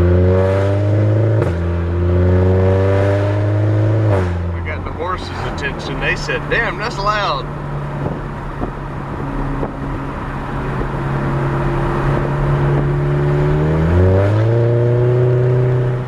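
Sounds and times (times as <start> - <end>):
loud car exhaust accelerating: 0.0 - 16.0.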